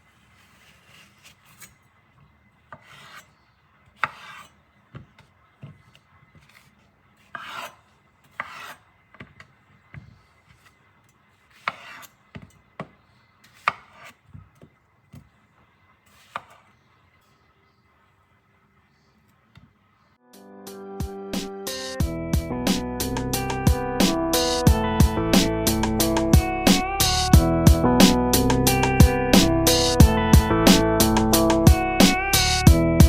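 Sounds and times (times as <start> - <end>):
knife slicing on a board: 0.3 - 1.9, 2.7 - 10.8, 11.4 - 15.3, 16.1 - 16.8.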